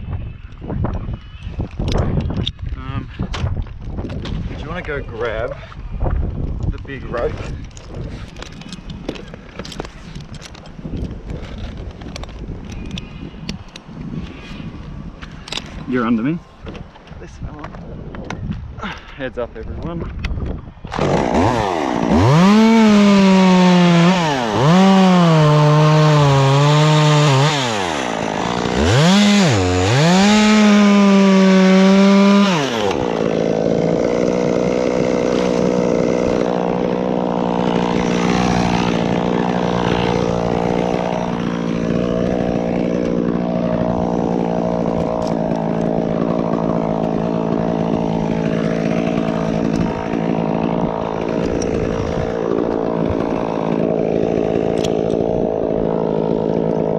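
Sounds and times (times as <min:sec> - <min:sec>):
chainsaw cutting wood: 0:20.8 - 0:56.9.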